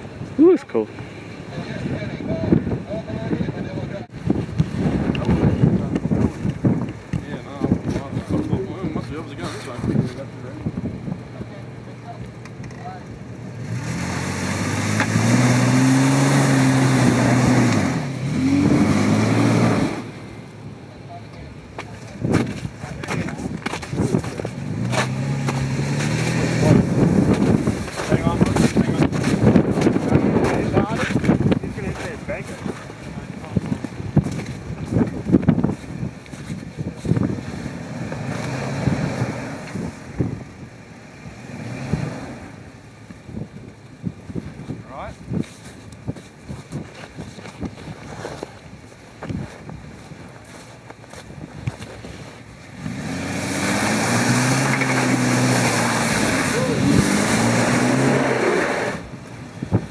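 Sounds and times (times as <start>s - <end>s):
vehicle engine revving: 12.6s - 20.6s, 22.2s - 43.4s, 52.6s - 59.9s.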